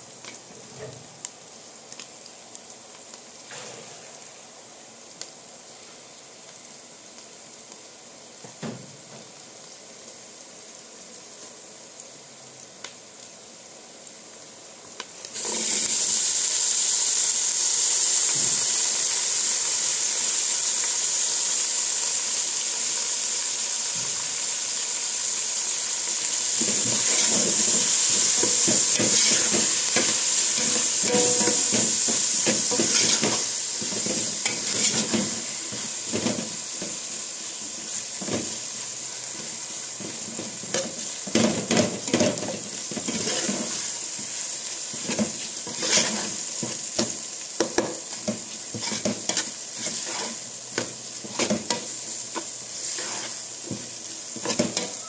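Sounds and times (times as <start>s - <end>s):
onions sizzling in oil: 0.0s - 55.0s
spatula scraping and knocking pot: 28.4s - 35.3s, 45.0s - 47.1s, 47.7s - 50.4s, 54.4s - 55.0s.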